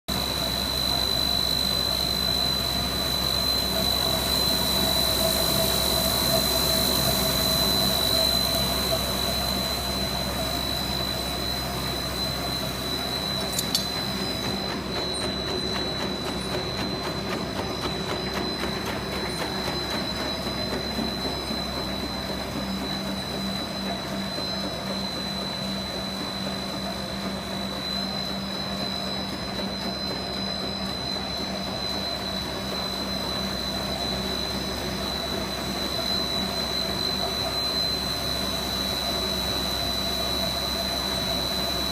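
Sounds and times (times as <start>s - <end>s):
production machinery whine and hum: 0.1s - 41.9s
sharp click: 13.5s - 13.9s.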